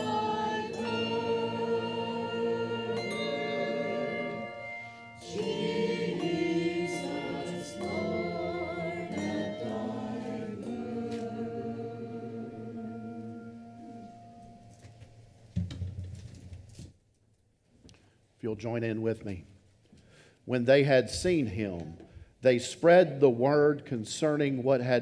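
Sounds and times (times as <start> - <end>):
church choir singing in harmony: 0.0 - 14.6.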